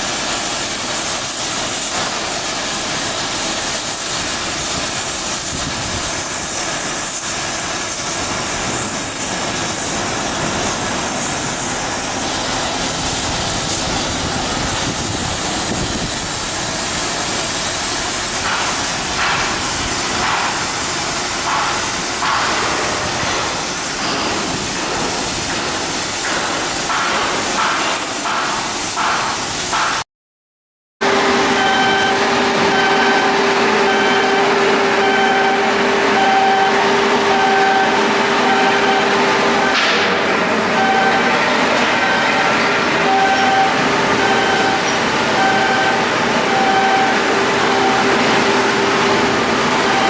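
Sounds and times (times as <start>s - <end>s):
loud hissing noise: 0.0s - 30.0s
sharp knocks: 18.4s - 20.6s, 21.4s - 30.0s.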